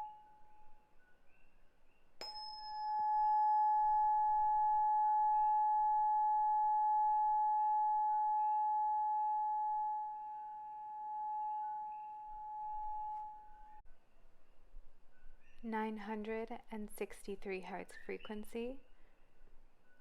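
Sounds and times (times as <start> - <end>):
tuning fork pure tone ringing: 0.0 - 1.6, 2.2 - 13.8
tuning fork struck: 2.2 - 13.8.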